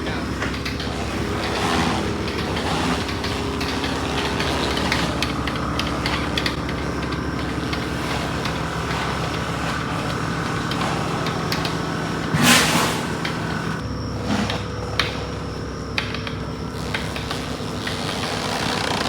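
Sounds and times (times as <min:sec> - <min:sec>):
small rattling clicks: 0:00.0 - 0:12.3
motor running steadily: 0:00.0 - 0:19.0.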